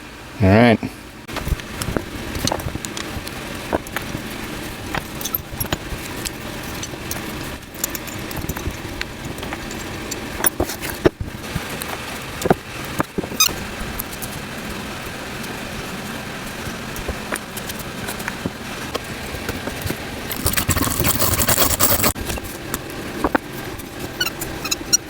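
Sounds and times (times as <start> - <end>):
steady background noise: 0.0 - 25.0
small metal parts clicking: 1.8 - 11.1, 19.4 - 22.4.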